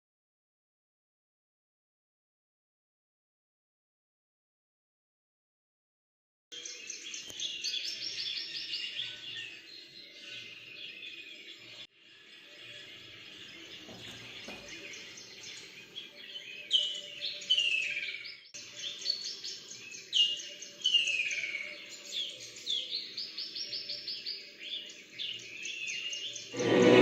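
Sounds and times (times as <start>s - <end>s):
birdsong through tv speakers: 6.5s - 27.0s.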